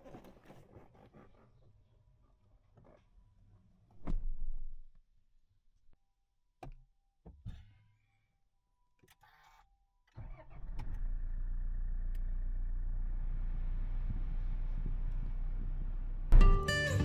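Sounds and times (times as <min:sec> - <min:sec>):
vehicle engine starting and idling: 0:10.2 - 0:17.0.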